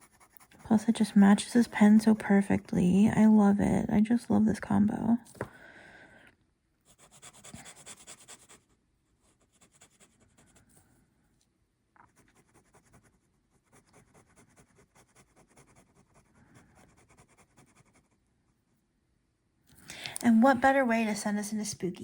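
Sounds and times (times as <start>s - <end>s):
fountain pen scratching on paper: 0.0s - 1.0s, 6.9s - 10.6s, 12.1s - 18.2s.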